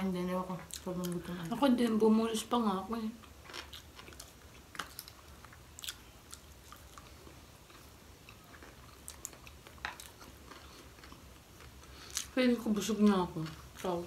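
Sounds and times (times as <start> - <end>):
chewing with wet smacks: 3.3 - 12.3.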